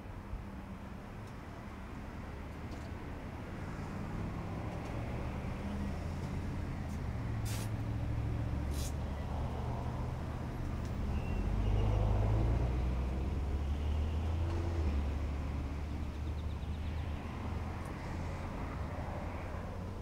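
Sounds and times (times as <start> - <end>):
vehicle engine rumble: 0.0 - 20.0
short sharp hisses: 7.4 - 7.8, 8.7 - 9.0.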